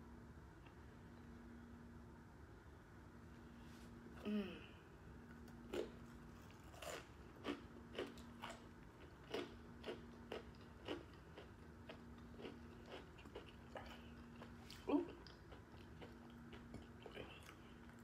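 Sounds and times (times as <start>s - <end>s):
faint steady hum: 0.0s - 18.0s
crisp chewing crunches: 5.4s - 18.0s.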